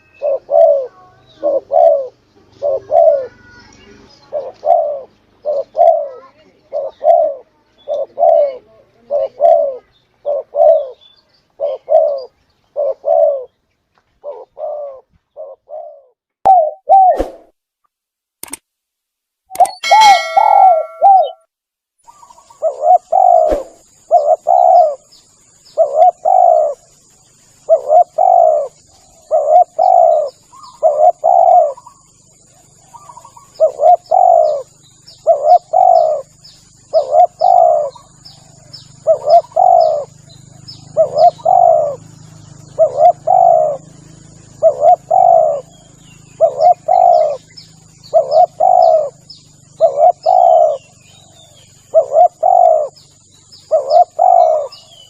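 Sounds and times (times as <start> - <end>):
dove cooing: 0.0 - 3.6, 4.2 - 11.0, 11.6 - 13.6, 14.2 - 17.2, 19.6 - 21.4, 22.4 - 25.1, 25.7 - 26.9, 27.6 - 55.0
faint high chirps: 19.5 - 55.0
thin high whine: 19.6 - 21.4.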